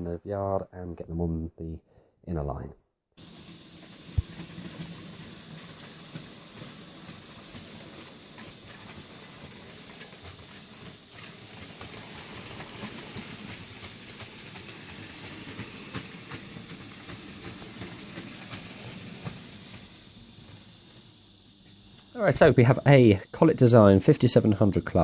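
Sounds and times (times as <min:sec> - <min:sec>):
wheels clicking over rail joints: 0:03.2 - 0:20.0
model train rolling and humming: 0:03.2 - 0:25.0.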